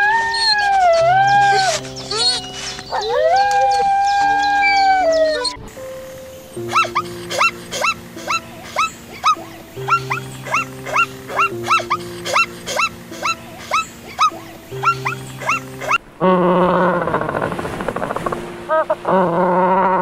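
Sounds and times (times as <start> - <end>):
music with long held notes: 0.0 - 16.4, 18.0 - 20.0
animal short rising calls: 6.7 - 18.1.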